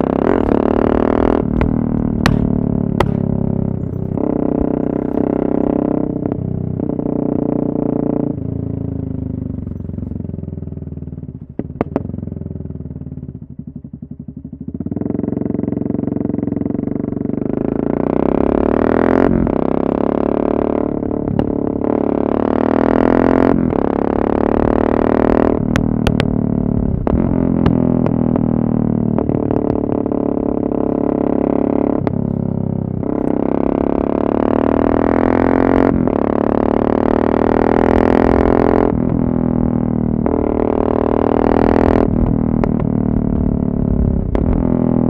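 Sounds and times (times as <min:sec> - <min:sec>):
motorcycle engine accelerating: 0:00.0 - 0:45.0
exhaust pops: 0:00.1 - 0:05.5, 0:25.6 - 0:28.4, 0:42.0 - 0:44.8.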